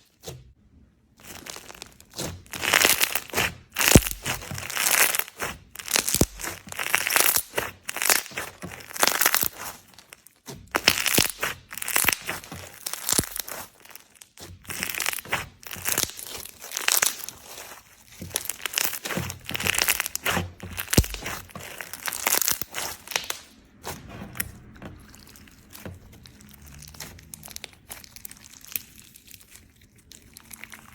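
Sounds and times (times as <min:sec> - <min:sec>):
slime being squished: 0:00.0 - 0:30.9.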